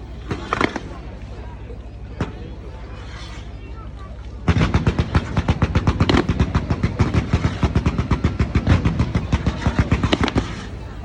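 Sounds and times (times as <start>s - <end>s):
fireworks bangs: 4.4s - 11.0s.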